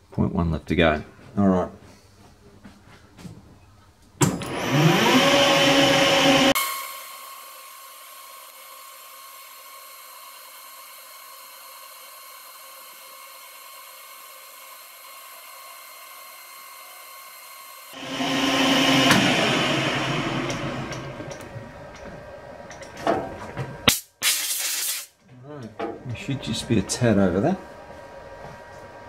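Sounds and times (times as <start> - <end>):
metal lathe running: 4.4 - 8.4, 17.9 - 22.2.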